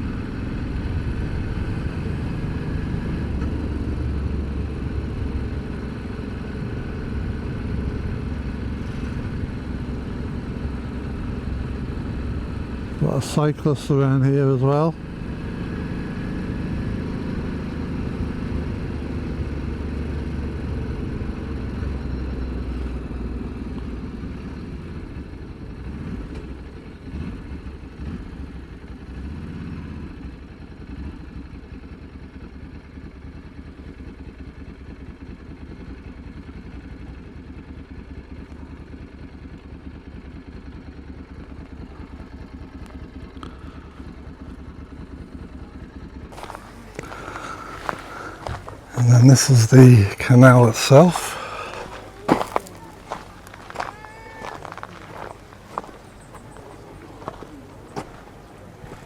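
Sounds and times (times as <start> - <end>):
motorcycle engine running: 0.0 - 13.2, 14.9 - 48.9.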